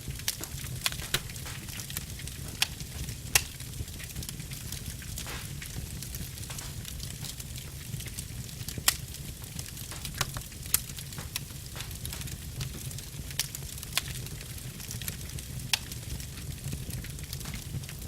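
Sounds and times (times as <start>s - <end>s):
wood fire crackling: 0.0s - 18.0s
sharp pops from logs: 0.3s - 4.1s, 4.8s - 14.1s, 17.3s - 17.7s.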